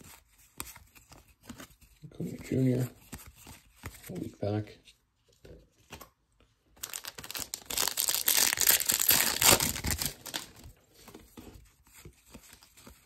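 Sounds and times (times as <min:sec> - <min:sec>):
foil wrapper crinkling: 0:06.8 - 0:10.6
cards rustling: 0:06.8 - 0:13.0.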